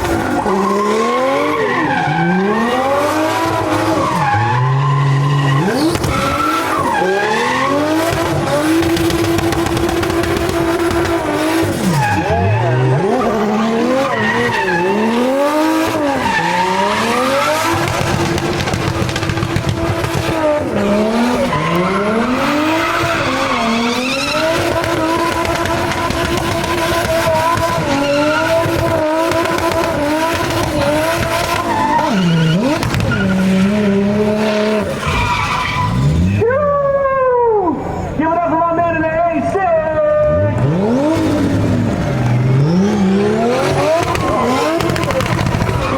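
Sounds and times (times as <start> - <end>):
turbocharged engine revving: 0.0 - 36.4, 40.2 - 45.9
tires squealing: 0.0 - 38.3, 39.4 - 45.9.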